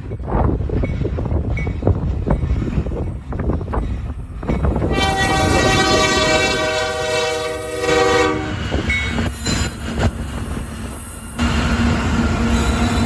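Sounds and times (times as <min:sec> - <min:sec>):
low rumble of passing train: 0:00.0 - 0:13.0
locomotive air horn blast: 0:04.9 - 0:08.7.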